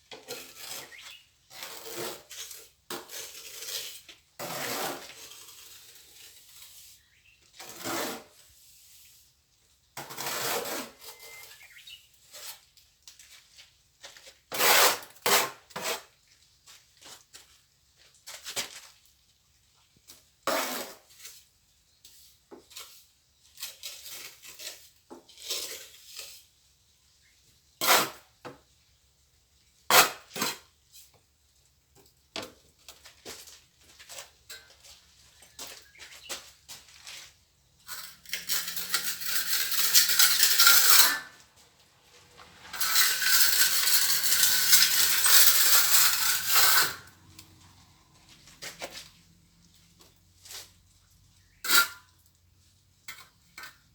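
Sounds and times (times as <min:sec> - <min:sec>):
trowel scraping wet mortar: 0:00.1 - 0:09.4, 0:10.0 - 0:12.8, 0:14.5 - 0:16.2, 0:20.5 - 0:21.5, 0:22.1 - 0:26.8, 0:27.8 - 0:28.3, 0:37.9 - 0:41.5, 0:42.2 - 0:47.8.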